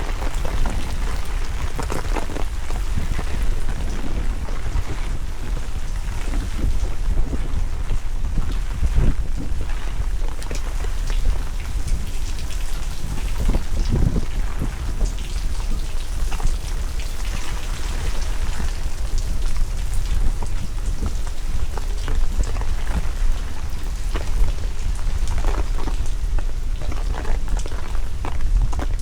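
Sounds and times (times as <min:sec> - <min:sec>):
heavy rain falling: 0:00.0 - 0:29.0
raindrops ticking close by: 0:00.0 - 0:29.0
wind buffeting microphone: 0:00.0 - 0:29.0.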